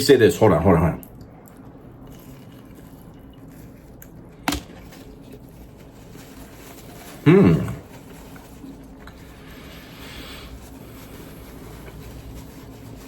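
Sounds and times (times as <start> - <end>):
wet chewing: 1.0 - 5.8.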